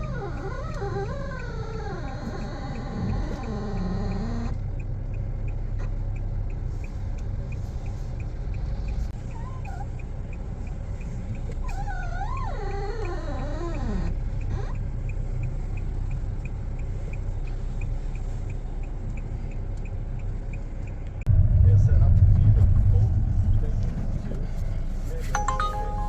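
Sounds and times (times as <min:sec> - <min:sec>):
suspension groaning: 0:00.0 - 0:04.6
low engine rumble: 0:00.0 - 0:26.0.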